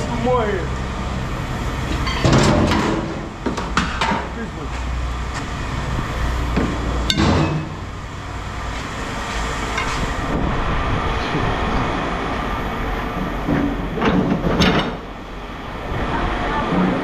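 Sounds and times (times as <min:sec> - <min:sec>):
low rumble: 0:05.0 - 0:14.5.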